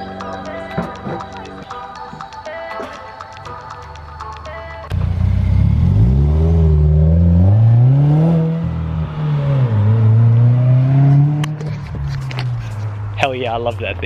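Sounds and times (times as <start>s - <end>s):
car engine revving: 4.9s - 14.0s.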